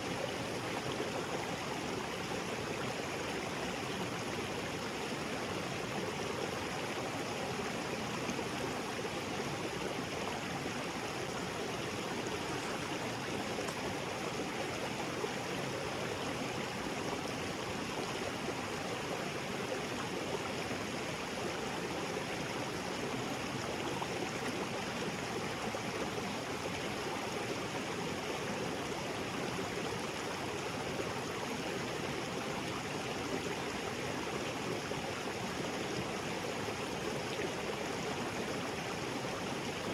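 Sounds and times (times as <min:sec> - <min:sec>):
water flowing over rocks: 0:00.0 - 0:39.9.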